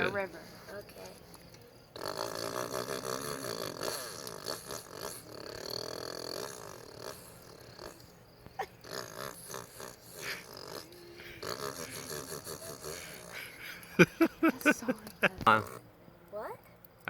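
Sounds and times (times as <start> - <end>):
person imitating motorbike engine: 10.2 - 13.4.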